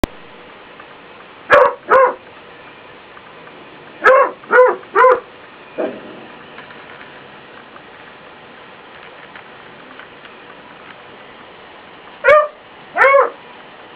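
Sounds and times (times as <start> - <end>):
dog barking: 1.5 - 2.2, 4.0 - 5.3, 12.2 - 13.4.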